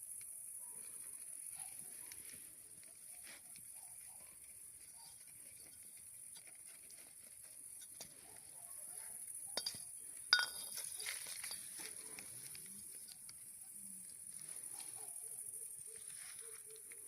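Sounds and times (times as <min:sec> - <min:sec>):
sharp ringing clink: 0:09.6 - 0:10.8.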